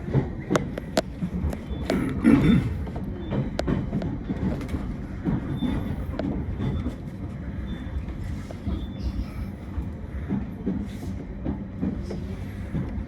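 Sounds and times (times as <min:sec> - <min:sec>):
rail clicks and knocks: 0:00.0 - 0:13.0
train rumbling on rails: 0:00.0 - 0:13.0.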